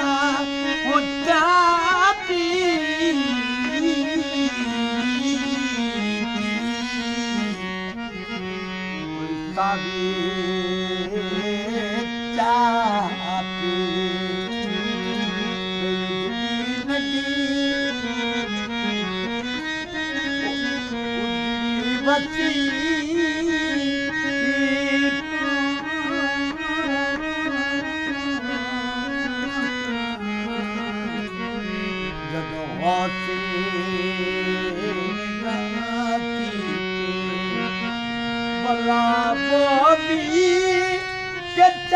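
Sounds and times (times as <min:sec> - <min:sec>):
harmonium melody: 0:00.0 - 0:41.9.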